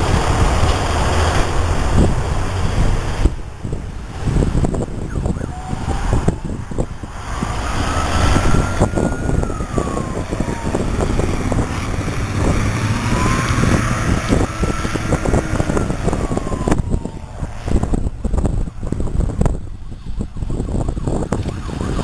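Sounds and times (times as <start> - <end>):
truck rumbling and rattling: 0.0 - 22.0
fire truck siren wailing: 5.0 - 22.0.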